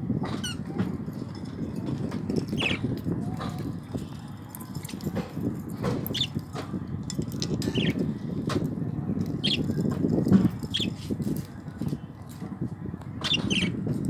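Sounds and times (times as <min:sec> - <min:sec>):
budgerigars chirping: 0:09.4 - 0:09.7, 0:10.7 - 0:10.9, 0:13.2 - 0:13.8.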